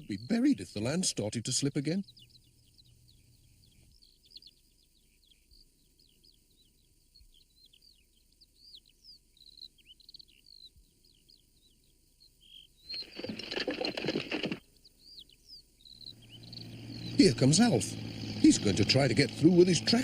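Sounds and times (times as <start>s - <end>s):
small birds chirping: 0.0s - 20.0s
loud rough noise: 16.5s - 20.0s.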